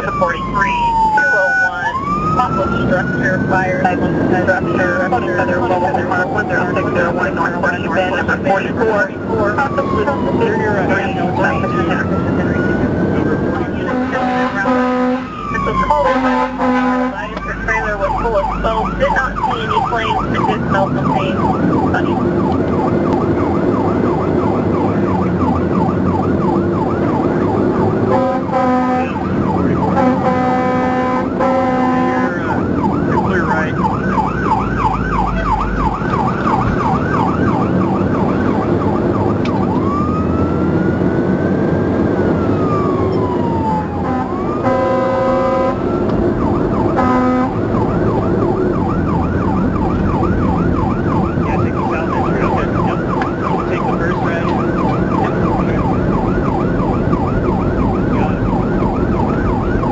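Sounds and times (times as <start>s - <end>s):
fire engine siren: 0.0s - 59.9s
truck engine and road noise: 0.0s - 59.9s
air horn blasts: 13.8s - 15.3s, 15.9s - 17.3s, 28.1s - 29.2s, 30.0s - 32.5s, 44.0s - 45.8s, 47.0s - 47.6s.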